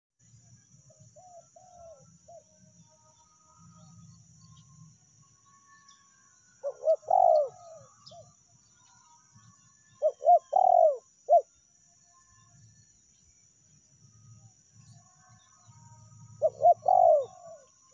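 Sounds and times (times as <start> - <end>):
dove cooing: 1.2 - 2.4, 6.6 - 8.2, 10.0 - 11.5, 16.4 - 17.7.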